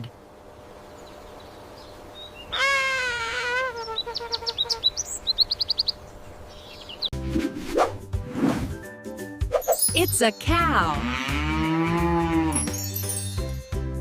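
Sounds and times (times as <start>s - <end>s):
long wavering bird call: 2.4s - 5.0s.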